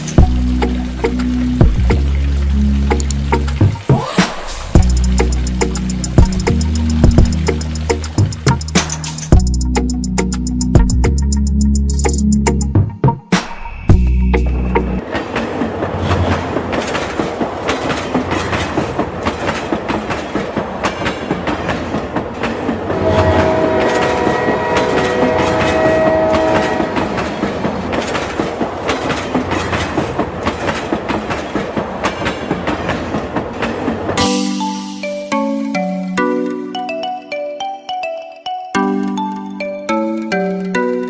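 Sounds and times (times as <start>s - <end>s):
wheels clacking over rail joints: 14.4s - 34.6s
train horn: 22.8s - 27.8s.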